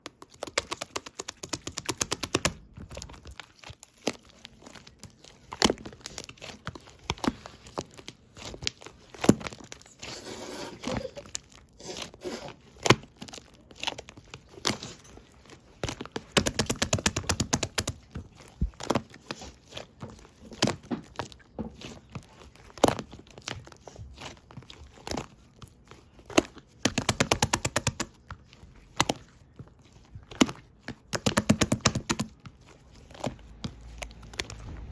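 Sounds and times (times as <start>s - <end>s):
slime squeezed clicking and popping: 0.2s - 4.9s
sharp cracks of slime: 0.2s - 9.7s, 15.8s - 22.0s, 26.2s - 28.2s, 30.3s - 32.4s.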